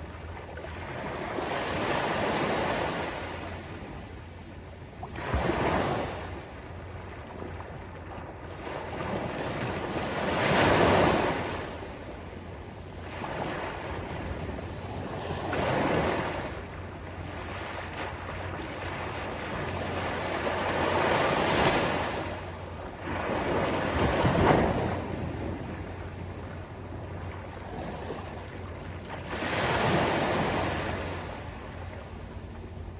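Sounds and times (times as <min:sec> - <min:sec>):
sea waves breaking on a beach: 0:00.0 - 0:32.9.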